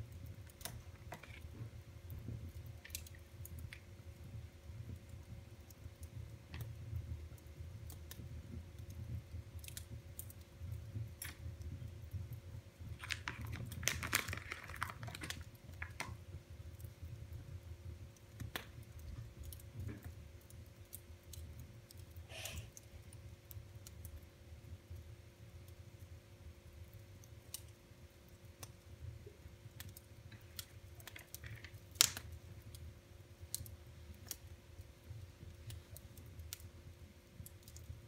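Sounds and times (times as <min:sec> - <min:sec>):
wood fire crackling: 0:00.0 - 0:38.0
sharp pops of fire: 0:18.2 - 0:22.9, 0:29.7 - 0:32.7.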